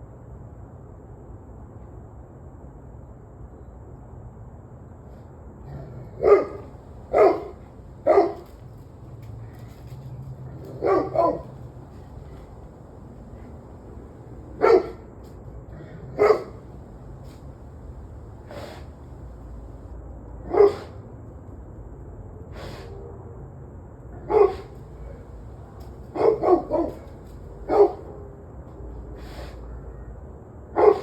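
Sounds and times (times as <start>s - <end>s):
low background hum: 5.6s - 21.0s, 24.1s - 30.1s
dog barking: 6.2s - 8.8s, 10.5s - 15.0s, 16.1s - 17.5s, 20.4s - 21.0s, 24.2s - 28.1s, 30.8s - 31.0s.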